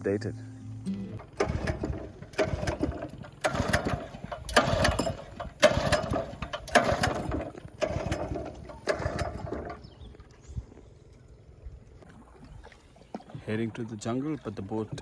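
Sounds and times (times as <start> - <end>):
outboard motor pull-start rasping: 0.7 - 12.0.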